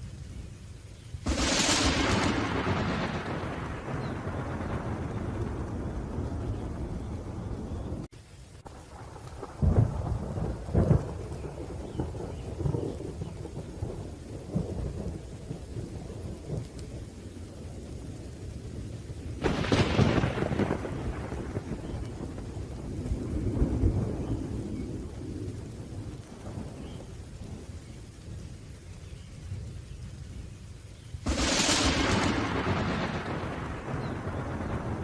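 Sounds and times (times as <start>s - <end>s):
steady rain: 0.0s - 35.0s
sharp thunderclap: 1.2s - 8.1s, 8.9s - 16.9s, 19.4s - 27.7s, 31.2s - 35.0s
rolling thunder: 1.2s - 30.6s, 31.2s - 35.0s.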